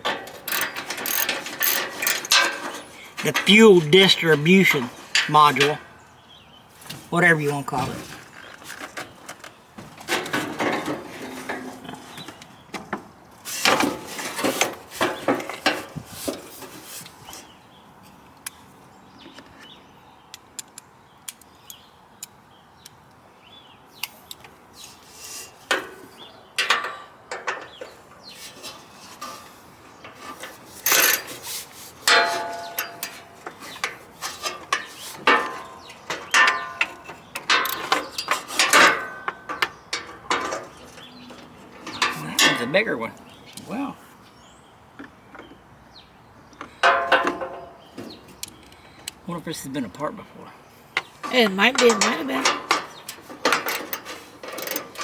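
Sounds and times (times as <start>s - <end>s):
metal tools clinking: 0.0s - 5.8s, 30.8s - 31.4s, 32.1s - 40.7s, 51.6s - 55.0s.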